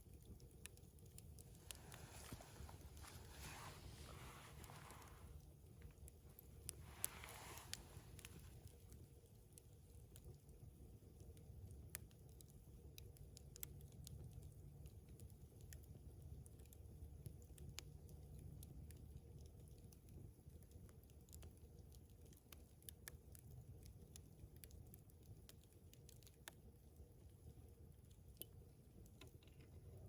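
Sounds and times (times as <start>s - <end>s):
low steady rumble: 0.0s - 10.1s
campfire crackling: 0.0s - 30.0s.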